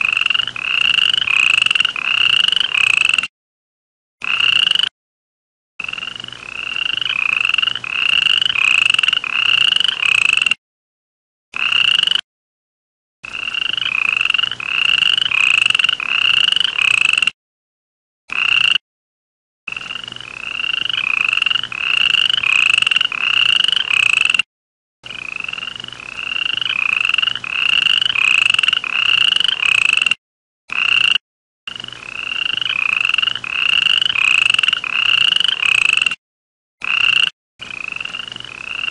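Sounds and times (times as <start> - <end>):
frog calling: 0.0 - 3.3, 4.2 - 4.9, 5.8 - 10.6, 11.6 - 12.2, 13.3 - 17.3, 18.3 - 18.8, 19.7 - 24.4, 25.0 - 36.2, 36.8 - 38.9.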